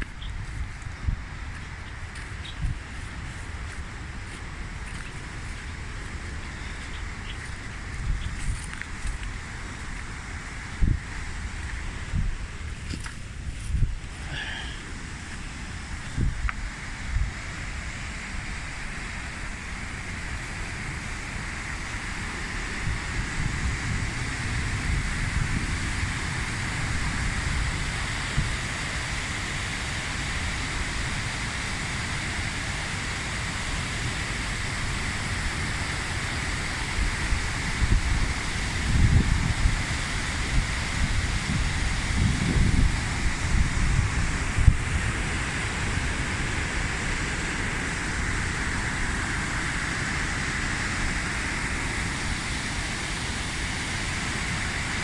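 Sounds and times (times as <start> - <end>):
steady rushing hiss: 0.0 - 55.0
wind buffeting microphone: 36.6 - 49.2.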